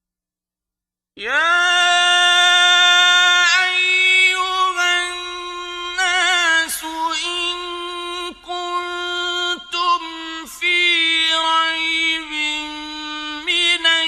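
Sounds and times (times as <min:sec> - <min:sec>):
man chanting melodically: 0:01.2 - 0:14.0.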